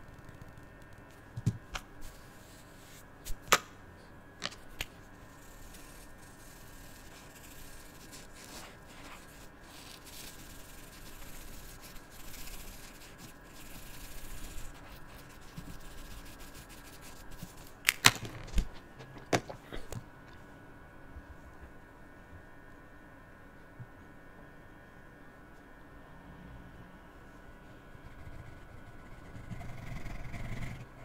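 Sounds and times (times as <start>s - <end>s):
marker scratching on paper: 5.4s - 17.7s.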